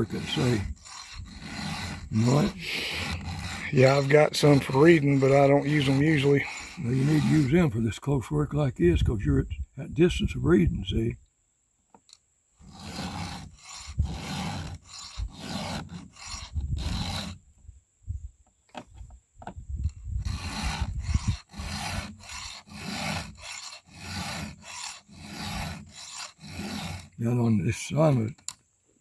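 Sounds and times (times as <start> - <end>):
hand file rasping on chain: 0.0 - 7.8, 12.6 - 17.4, 19.9 - 27.2.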